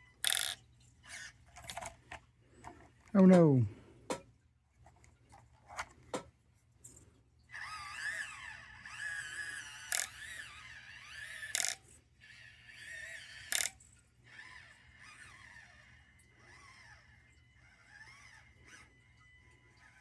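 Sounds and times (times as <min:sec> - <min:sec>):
small electric motor whining: 0:00.0 - 0:02.1, 0:07.5 - 0:20.0.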